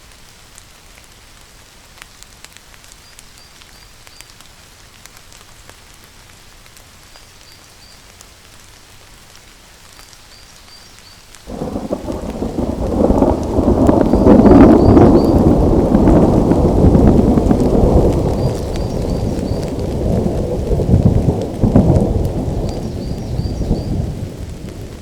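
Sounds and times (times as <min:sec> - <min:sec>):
rain drip ticks: 0:00.0 - 0:25.0
steady rain: 0:00.0 - 0:25.0
thunderclap rumble: 0:11.5 - 0:25.0.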